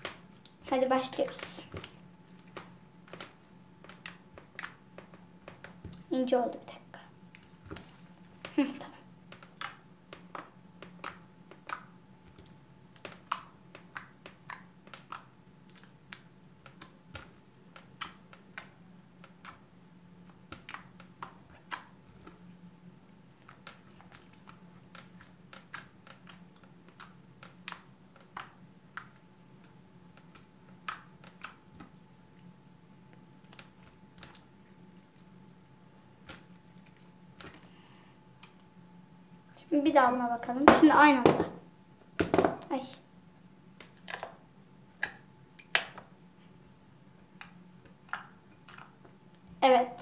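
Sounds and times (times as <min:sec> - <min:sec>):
slime clicking and popping: 0:09.3 - 0:19.6, 0:23.4 - 0:31.9, 0:43.8 - 0:46.1.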